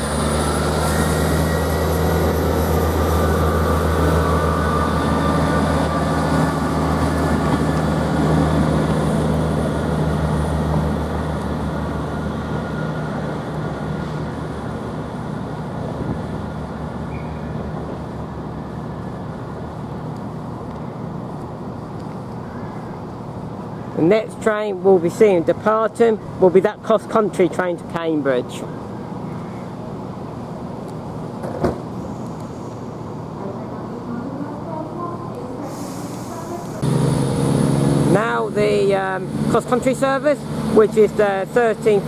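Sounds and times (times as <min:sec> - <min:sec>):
high rising whine: 0:00.0 - 0:09.5
rail noise: 0:00.0 - 0:42.0
train diesel engines: 0:00.0 - 0:42.0.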